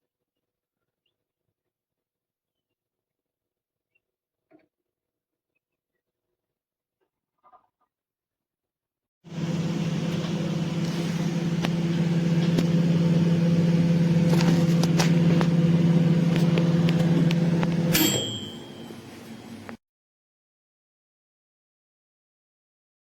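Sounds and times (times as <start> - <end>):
microwave oven humming: 9.3 - 19.8
timer bell ringing: 17.3 - 19.7.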